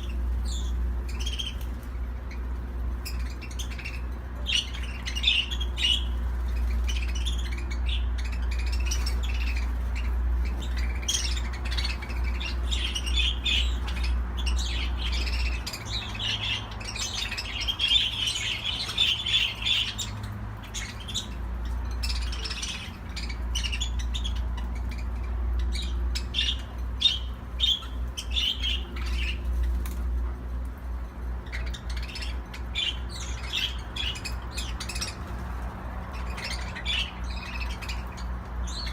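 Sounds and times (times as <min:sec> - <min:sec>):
budgerigars chattering and chirping: 0:00.0 - 0:38.9
steady low hum: 0:00.0 - 0:38.9.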